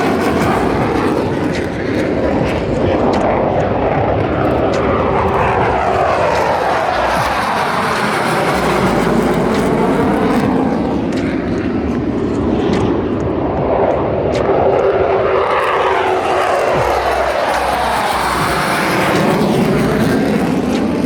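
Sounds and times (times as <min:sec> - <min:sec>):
jet flying past: 0:00.0 - 0:21.0.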